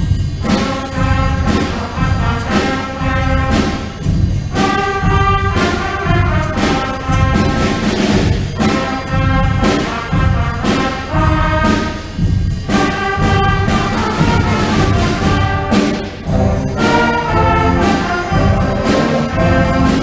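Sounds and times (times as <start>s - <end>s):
percussion strikes: 0.0s - 20.0s
brass and woodwind chords: 0.4s - 20.0s.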